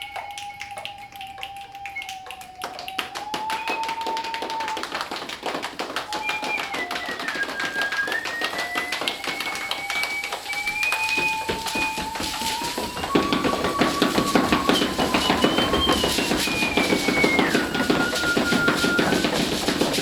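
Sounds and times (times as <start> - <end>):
quick taps and knocks: 2.9 - 20.0
held high sliding tone: 6.1 - 20.0.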